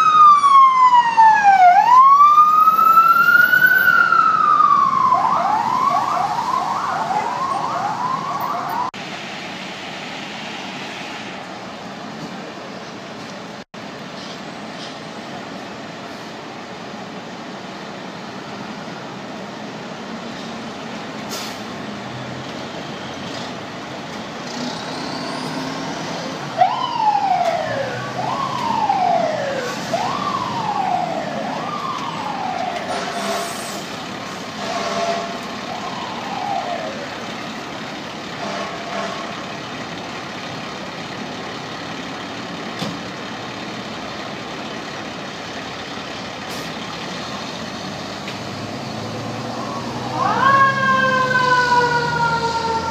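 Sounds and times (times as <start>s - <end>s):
fire truck siren: 0.0s - 11.8s, 24.4s - 52.9s
city traffic noise: 0.0s - 52.9s.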